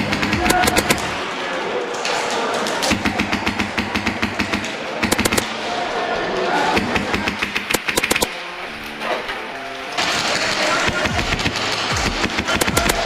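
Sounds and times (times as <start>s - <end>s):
airsoft guns firing bursts: 0.0s - 1.2s, 2.9s - 5.5s, 6.8s - 8.3s, 10.0s - 13.0s.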